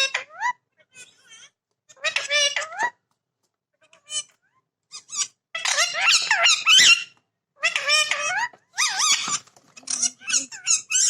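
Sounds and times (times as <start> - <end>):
parrot chattering: 4.9 - 11.0.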